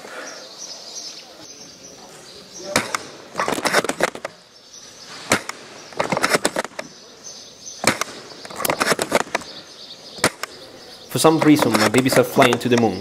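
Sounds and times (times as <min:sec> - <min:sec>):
airsoft rifle shots: 0:02.7 - 0:04.4, 0:05.2 - 0:07.0, 0:07.8 - 0:09.6, 0:10.2 - 0:10.6.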